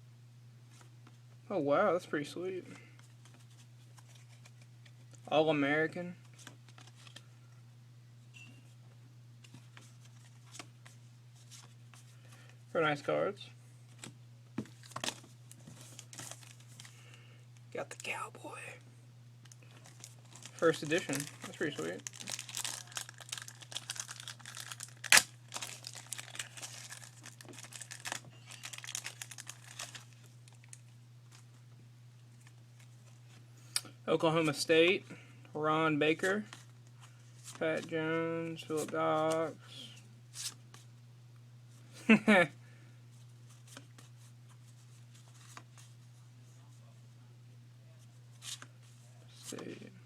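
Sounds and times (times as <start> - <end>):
low electrical hum: 0.0 - 50.0
foil wrapper crinkling and tearing: 15.8 - 16.9, 19.5 - 30.9.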